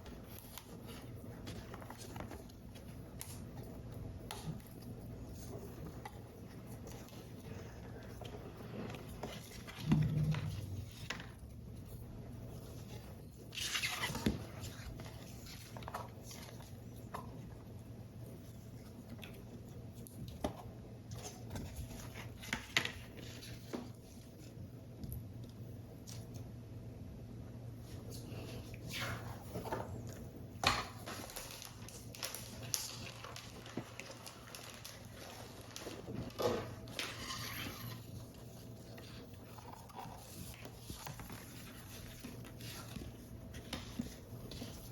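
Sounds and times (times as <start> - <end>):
papery rustle: 31.0 - 44.9.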